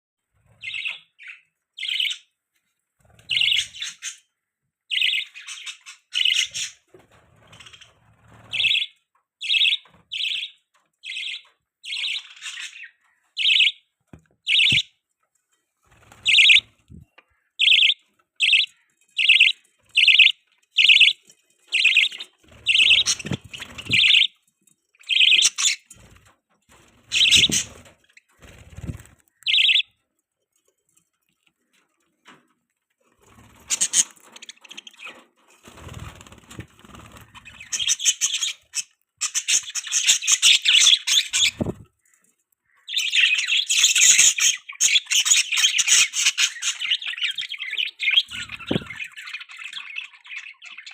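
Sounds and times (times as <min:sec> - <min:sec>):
budgerigars chirping: 0:00.6 - 0:02.3, 0:03.3 - 0:04.3, 0:04.9 - 0:06.9, 0:07.5 - 0:13.8, 0:14.5 - 0:14.9, 0:16.0 - 0:24.4, 0:25.0 - 0:25.9, 0:27.0 - 0:29.9, 0:33.6 - 0:35.3, 0:35.9 - 0:41.8, 0:42.6 - 0:50.9.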